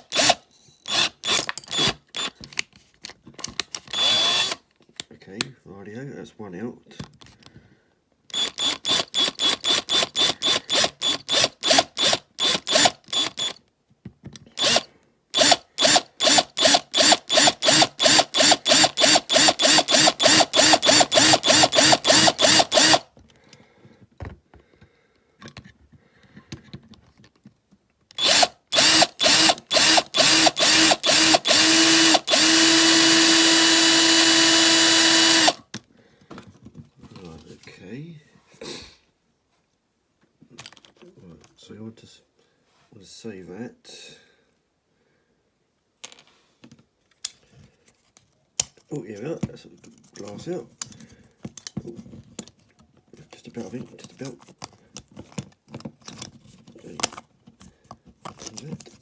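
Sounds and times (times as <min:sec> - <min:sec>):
small electric drill boring: 0:00.0 - 0:02.3, 0:03.9 - 0:04.6, 0:08.3 - 0:13.6, 0:14.6 - 0:23.1, 0:28.2 - 0:35.6.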